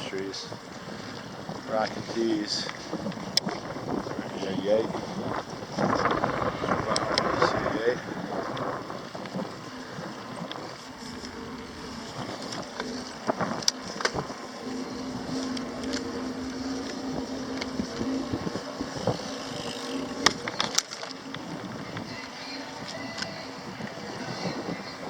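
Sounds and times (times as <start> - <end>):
bicycle rolling noise: 0.0 - 25.0
wind rushing over microphone: 0.0 - 25.0
sharp clicks and rattles: 1.5 - 23.3
low steady hum: 5.1 - 25.0.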